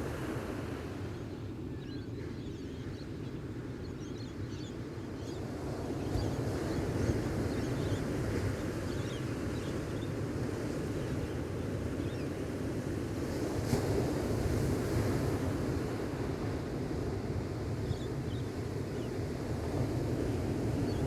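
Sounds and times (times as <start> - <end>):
ocean waves washing on beach: 5.4 - 21.0.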